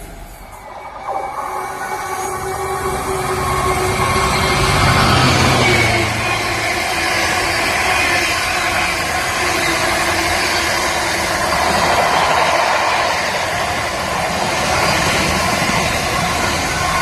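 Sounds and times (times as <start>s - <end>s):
train passing on rails: 0.0s - 17.0s.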